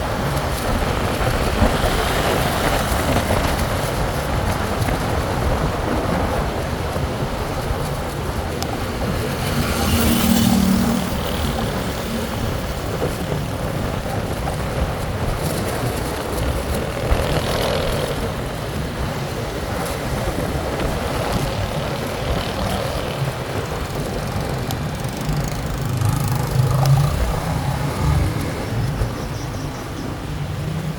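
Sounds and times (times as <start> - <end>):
vehicle engine running: 0.0 - 29.6
road and wind rumble: 0.0 - 30.9.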